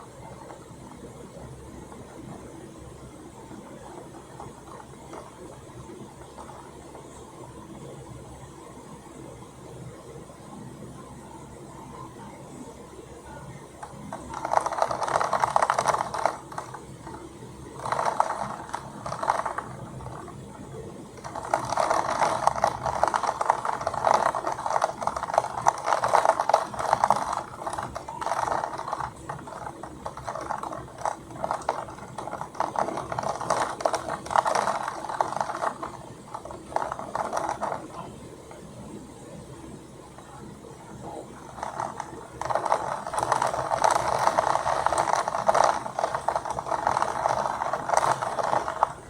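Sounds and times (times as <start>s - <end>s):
storm rain pelting hard surface: 21.1s - 38.1s, 41.5s - 49.0s.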